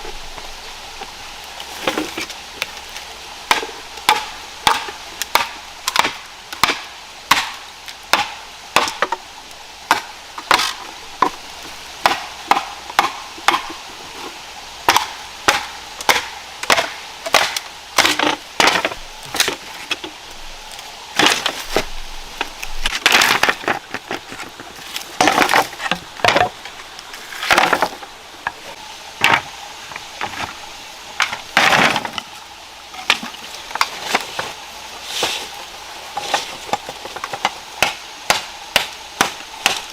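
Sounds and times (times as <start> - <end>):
blade chopping wood: 3.5 - 9.2, 9.9 - 11.4, 12.0 - 13.8, 14.9 - 19.6, 25.1 - 26.5, 36.2 - 39.9
wood splintering: 14.9 - 20.2, 21.1 - 28.6, 31.2 - 32.3, 33.0 - 39.9.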